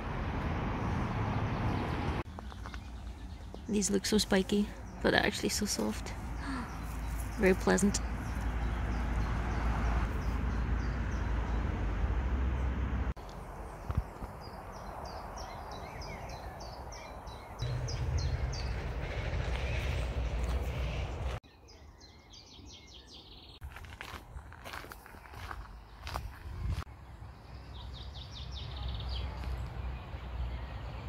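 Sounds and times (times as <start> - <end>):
wind buffeting microphone: 17.6 - 21.4, 26.0 - 26.9.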